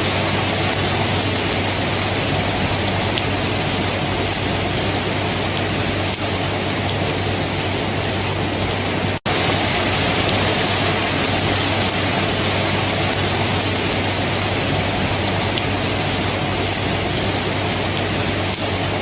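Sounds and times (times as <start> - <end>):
heavy rain: 0.0 - 19.0.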